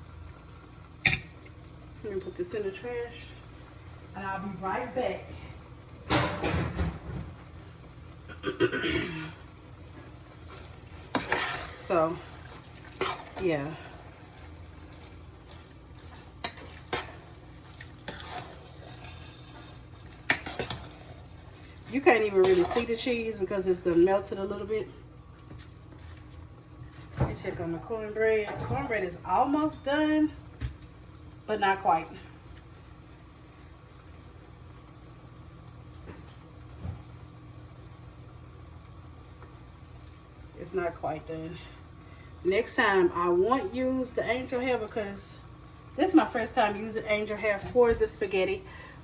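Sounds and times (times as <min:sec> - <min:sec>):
low steady hum: 0:00.0 - 0:49.0
spoon stirring and scraping a pot: 0:10.0 - 0:23.4.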